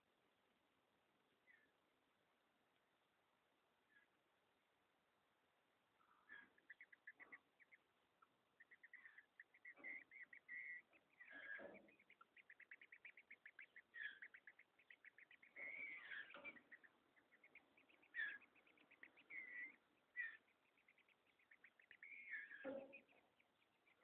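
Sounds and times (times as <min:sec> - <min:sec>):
bird chicks begging chips: 0:06.0 - 0:24.0
louder slurred bird calls: 0:06.0 - 0:24.0.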